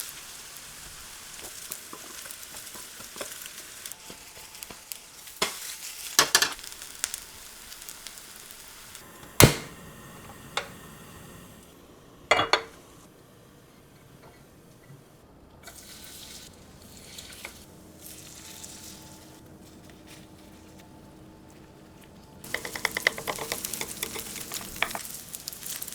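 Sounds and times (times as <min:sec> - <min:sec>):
food sizzling in a frying pan: 0:00.0 - 0:13.2, 0:15.6 - 0:19.4, 0:22.4 - 0:25.9
utensil knocking against pan: 0:22.5 - 0:25.0.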